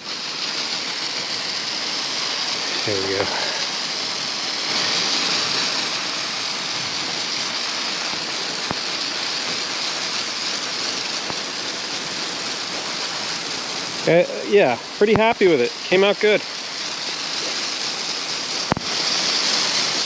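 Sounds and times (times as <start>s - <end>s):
garden hose spraying water: 0.0s - 20.0s.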